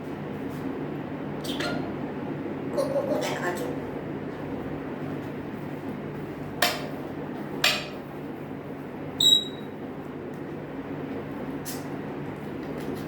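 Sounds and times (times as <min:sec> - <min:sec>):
low room hum: 0:00.0 - 0:13.0
parrot whistle: 0:09.2 - 0:09.6.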